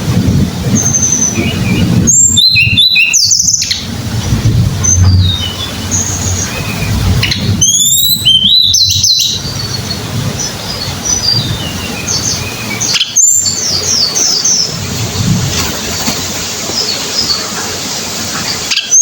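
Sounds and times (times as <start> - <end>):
bird chirps: 0.7 - 3.9, 4.8 - 19.0
bird whistling song: 0.7 - 3.9, 4.8 - 14.9, 18.4 - 19.0.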